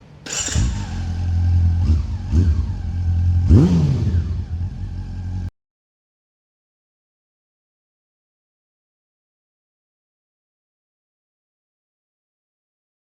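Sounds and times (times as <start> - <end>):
motorcycle engine throttle blips: 0.2 - 5.5.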